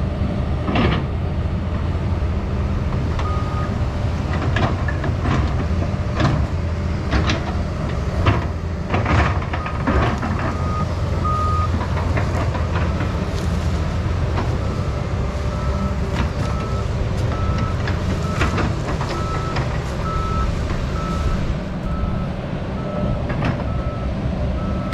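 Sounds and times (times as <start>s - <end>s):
excavator engine running: 0.0s - 24.9s
backup alarm beeping: 10.6s - 11.8s, 14.5s - 24.9s.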